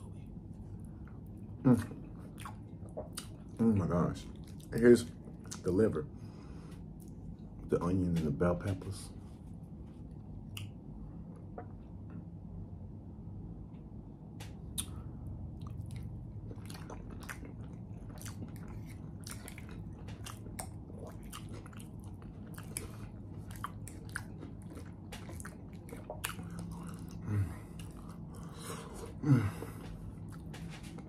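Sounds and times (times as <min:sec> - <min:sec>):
person chewing food: 0:00.0 - 0:05.7, 0:14.4 - 0:31.0.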